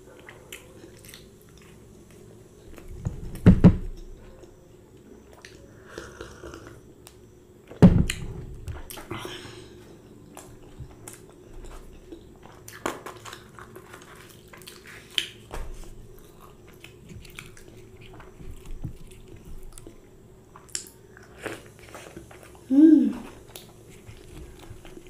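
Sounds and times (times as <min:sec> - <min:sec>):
person biting and chewing food: 0:10.3 - 0:20.0.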